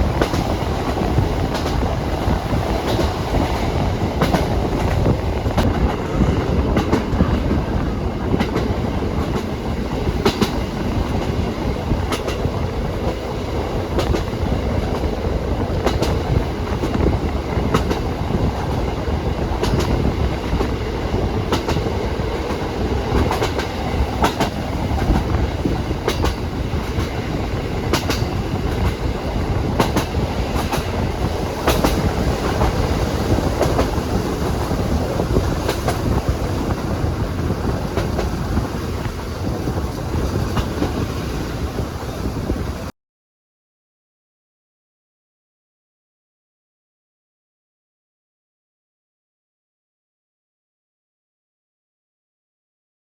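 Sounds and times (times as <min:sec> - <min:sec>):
wheels clacking over rail joints: 0:00.0 - 0:41.8
train wheels rumbling on rail: 0:00.0 - 0:42.9.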